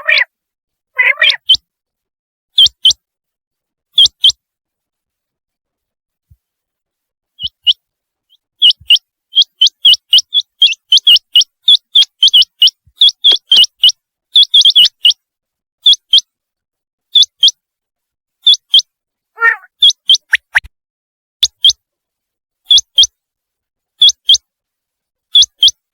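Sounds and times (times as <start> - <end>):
quail whistled calls: 0.0 - 0.3, 1.0 - 1.6, 2.6 - 3.0, 4.0 - 4.4, 7.4 - 15.2, 15.8 - 16.2, 17.2 - 17.6, 18.4 - 20.7, 21.4 - 21.8, 22.7 - 23.1, 24.0 - 24.4, 25.3 - 25.8
soft low quail call: 0.0 - 0.3, 1.0 - 1.6, 7.4 - 15.2, 19.4 - 20.6.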